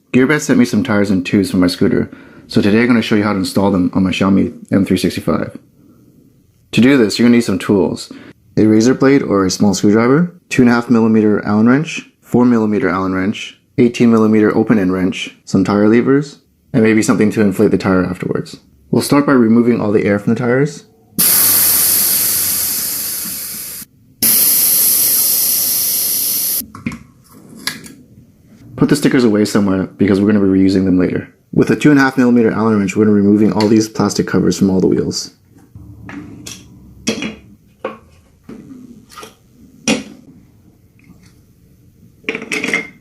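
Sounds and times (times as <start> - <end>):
air hissing from tyre valve: 21.2 - 26.6.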